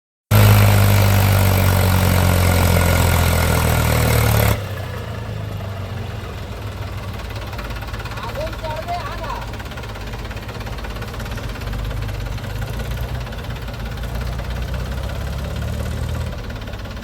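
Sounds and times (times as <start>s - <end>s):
tractor engine running: 0.3s - 17.0s.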